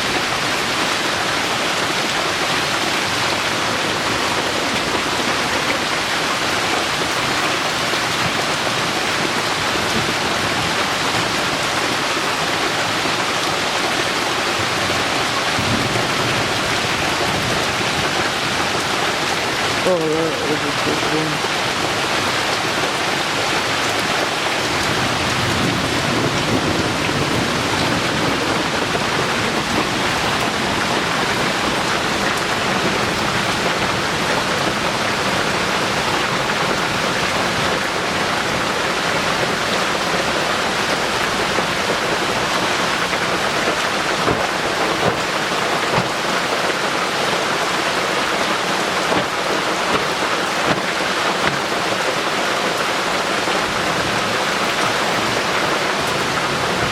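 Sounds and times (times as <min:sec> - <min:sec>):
heavy rain pouring: 0:00.0 - 0:56.9
low rumble of thunder: 0:24.9 - 0:31.9.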